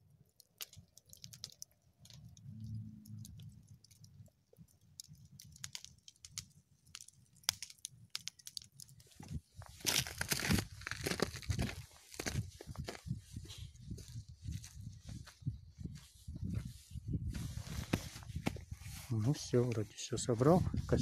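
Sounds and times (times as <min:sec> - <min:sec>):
campfire crackling and popping: 0:00.0 - 0:16.0
rustling and crunching: 0:00.4 - 0:20.6.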